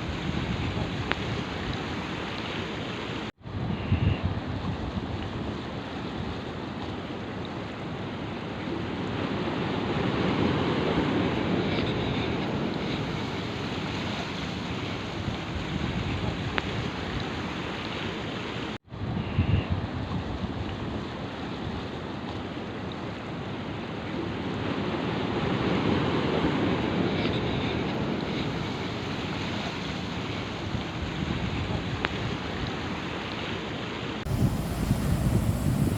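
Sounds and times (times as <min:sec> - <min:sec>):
wind buffeting microphone: 0:00.0 - 0:02.2, 0:03.4 - 0:06.6, 0:10.3 - 0:17.6, 0:18.9 - 0:22.0, 0:30.1 - 0:32.8, 0:34.2 - 0:35.9
surf washing on shore: 0:00.0 - 0:35.9.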